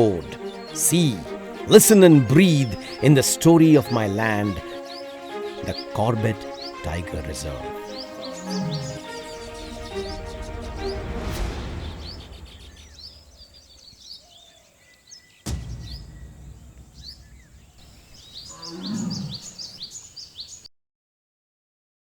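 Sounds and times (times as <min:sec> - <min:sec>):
music: 0:00.0 - 0:13.8, 0:15.5 - 0:18.1
birds chirping and calling: 0:00.0 - 0:20.7
big cat roaring: 0:08.4 - 0:09.1, 0:18.5 - 0:19.6
sharp crack with deep rumble: 0:09.9 - 0:13.9, 0:15.5 - 0:18.5.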